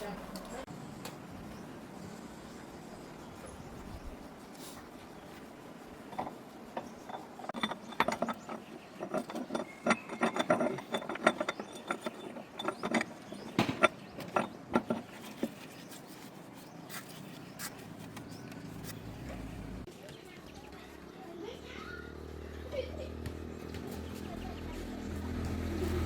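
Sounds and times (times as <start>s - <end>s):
metallic clicks and clanks of tools: 6.1s - 15.7s.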